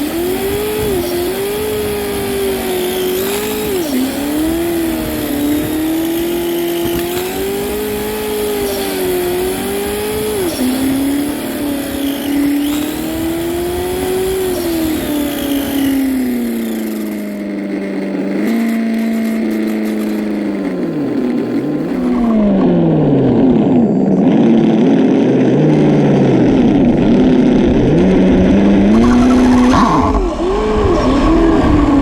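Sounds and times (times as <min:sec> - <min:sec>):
remote control car motor: 0:00.0 - 0:23.1, 0:24.2 - 0:32.0.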